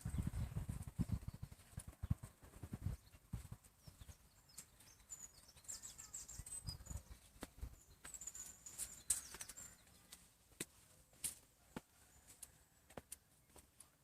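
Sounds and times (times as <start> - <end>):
faint high-pitched bird chirps: 3.8 - 10.4.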